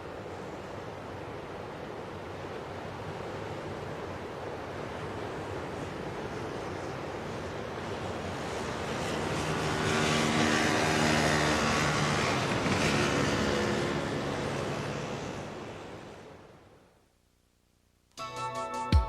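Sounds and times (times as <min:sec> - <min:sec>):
dirt bike engine passing: 0:08.4 - 0:15.8.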